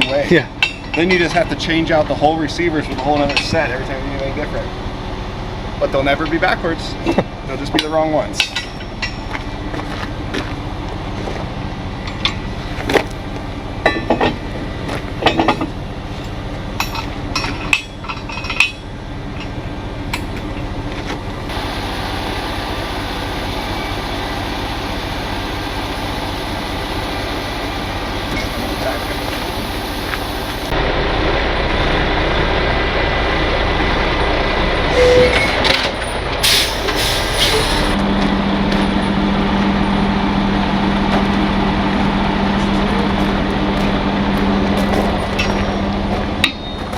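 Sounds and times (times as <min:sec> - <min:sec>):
truck engine running: 0:01.1 - 0:07.6, 0:08.2 - 0:46.9
metal clanks and knocks: 0:13.8 - 0:14.4, 0:15.2 - 0:15.8, 0:16.8 - 0:21.2.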